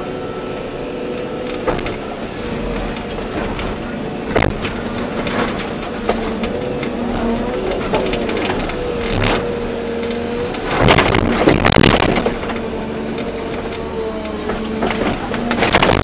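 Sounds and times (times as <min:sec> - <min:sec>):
excavator engine whine: 0:00.0 - 0:16.0
bucket scraping soil and stones: 0:01.9 - 0:09.6.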